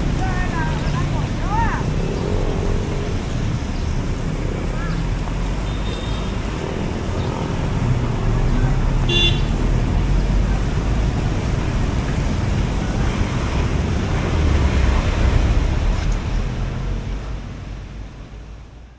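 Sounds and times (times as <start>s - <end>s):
road traffic rumble: 0.0s - 18.9s
car horn toot: 5.6s - 6.4s, 9.1s - 9.6s.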